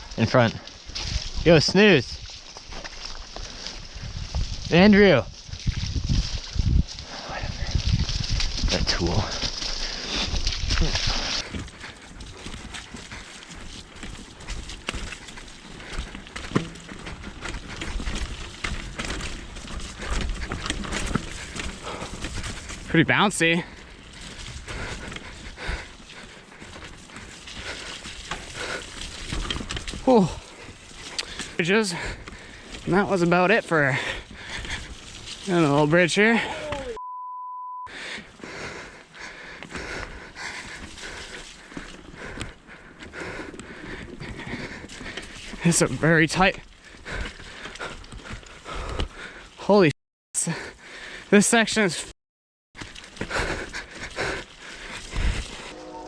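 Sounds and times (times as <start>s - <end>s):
bike tyres rolling on dirt: 0.0s - 37.0s, 38.0s - 49.9s, 52.8s - 55.8s
wind on microphone: 3.8s - 9.5s
bike clacking and rattling: 11.8s - 22.9s
censor bleep: 36.9s - 37.9s.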